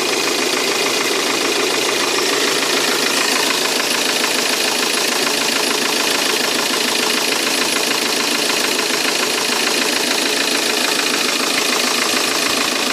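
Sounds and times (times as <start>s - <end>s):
diesel engine idling: 0.0s - 12.9s.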